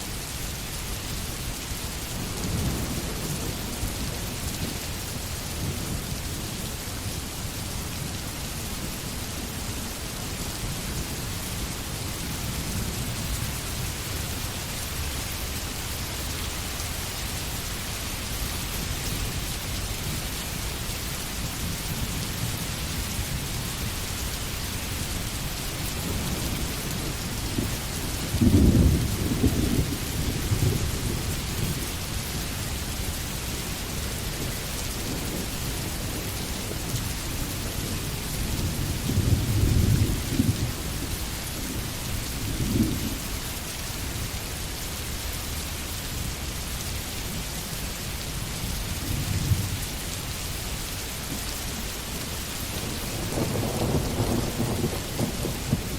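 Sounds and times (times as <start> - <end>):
steady rain in a forest: 0.0 - 55.9
low rumbles of thunder: 0.8 - 15.1, 25.1 - 43.4, 48.6 - 50.2, 52.7 - 55.9.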